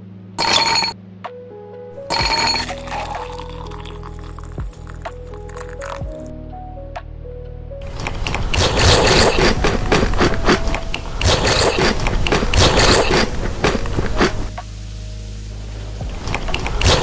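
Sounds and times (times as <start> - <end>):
sharp clicks: 7.9 - 14.6, 16.2 - 17.0.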